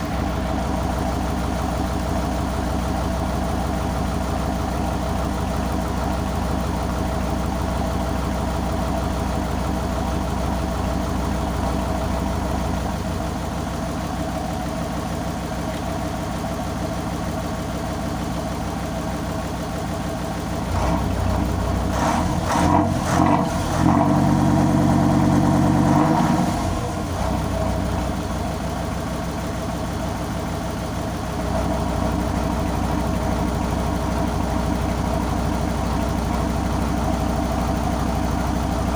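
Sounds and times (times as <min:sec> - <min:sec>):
tugboat engine revving: 0:20.7 - 0:28.0.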